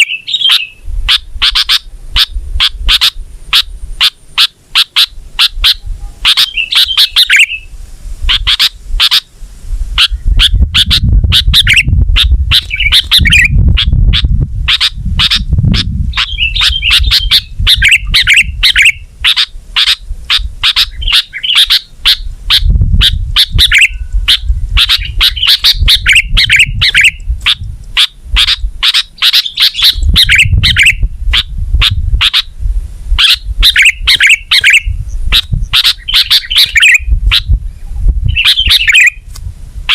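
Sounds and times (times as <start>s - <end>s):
bulbul singing: 0.0s - 9.3s, 10.0s - 32.5s, 33.2s - 39.3s
low rumble: 9.5s - 19.3s.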